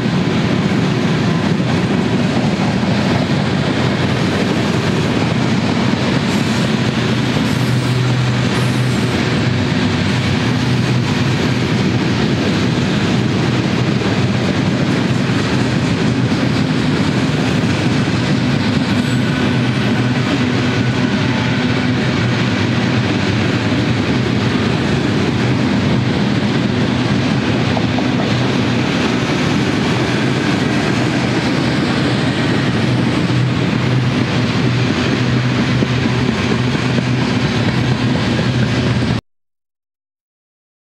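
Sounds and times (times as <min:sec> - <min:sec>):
freight train wheels rumbling: 0:00.0 - 0:39.2.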